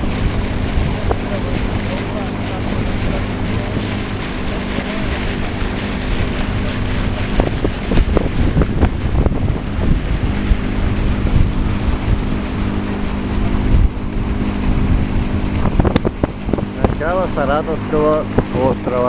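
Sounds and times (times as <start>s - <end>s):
motorboat engine running: 0.0s - 19.0s
wind buffeting microphone: 0.0s - 19.0s.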